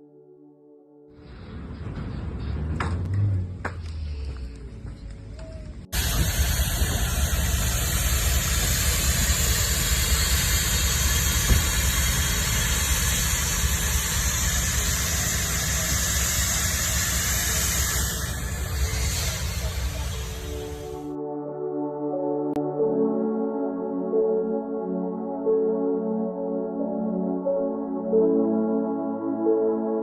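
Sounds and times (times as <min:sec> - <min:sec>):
freight train rumbling past: 0:01.1 - 0:04.2, 0:05.4 - 0:21.1.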